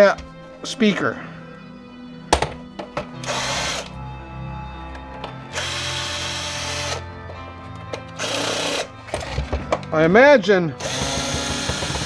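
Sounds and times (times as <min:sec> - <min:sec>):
power drill running: 0:03.2 - 0:04.0, 0:05.5 - 0:07.0, 0:08.2 - 0:08.9, 0:10.8 - 0:12.0.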